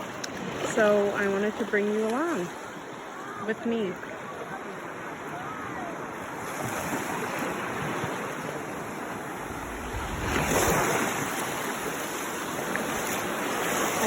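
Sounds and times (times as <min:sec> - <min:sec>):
ocean surf washing on shore: 0:00.0 - 0:14.0
wave breaking: 0:04.2 - 0:14.0.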